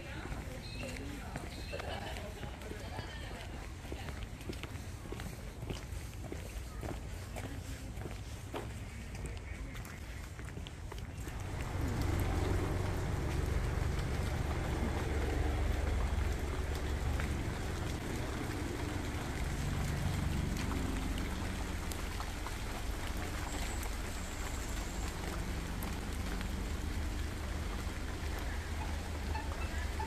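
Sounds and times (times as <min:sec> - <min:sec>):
steady rain falling: 0:00.0 - 0:04.1, 0:10.9 - 0:30.0
drops ticking: 0:11.2 - 0:30.0
low rumble: 0:11.2 - 0:30.0.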